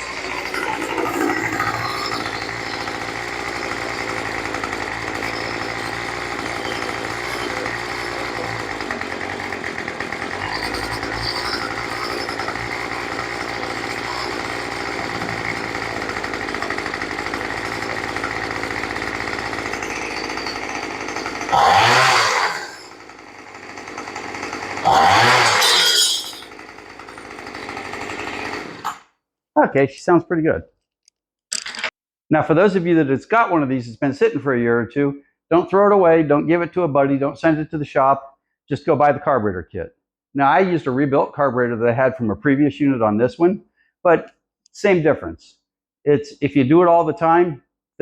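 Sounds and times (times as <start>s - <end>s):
small gasoline engine running: 0.0s - 29.1s.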